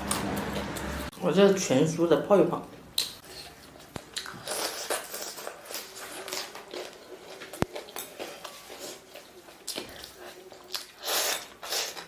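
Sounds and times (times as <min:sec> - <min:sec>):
person chewing and biting: 0:03.0 - 0:12.0.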